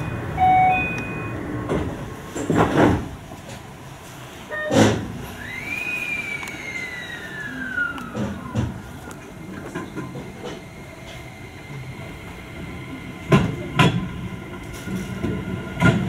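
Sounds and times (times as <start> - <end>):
train doors thudding shut: 0.0 - 3.7, 4.5 - 5.5, 8.1 - 9.0, 13.2 - 16.0
electrical whine of train: 0.0 - 16.0.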